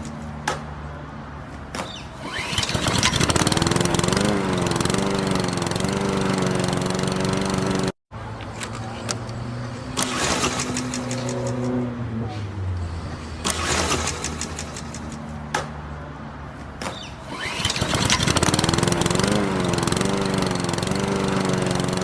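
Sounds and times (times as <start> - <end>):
lawnmower engine drone: 2.2 - 15.2, 17.2 - 22.0
clicks: 10.0 - 11.8, 13.4 - 15.8.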